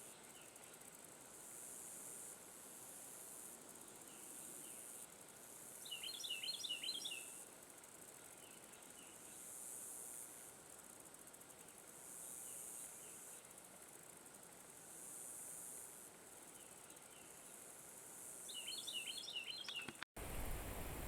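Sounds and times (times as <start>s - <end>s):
insects buzzing: 0.0s - 21.0s
bird chirping: 18.5s - 21.0s.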